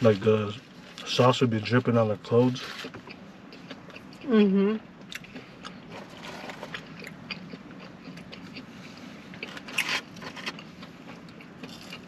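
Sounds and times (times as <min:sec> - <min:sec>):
person biting and chewing food: 0:05.1 - 0:12.0.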